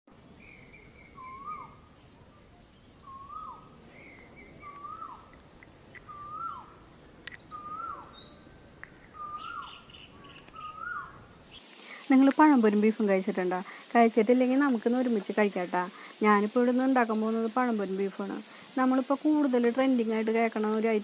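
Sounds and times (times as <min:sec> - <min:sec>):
high thin bird chirps: 0:00.2 - 0:12.0.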